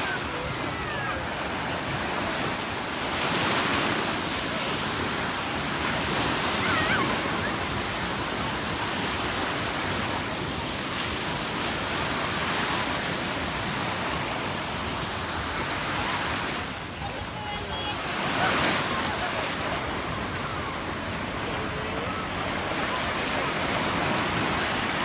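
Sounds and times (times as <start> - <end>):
faint voices: 0.0 - 11.6, 12.3 - 25.0
surf breaking on beach: 0.0 - 25.0.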